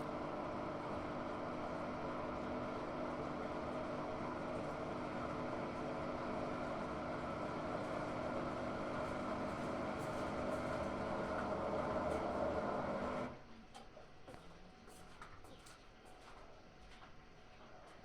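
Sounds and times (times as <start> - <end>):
washing machine humming: 0.0 - 13.4.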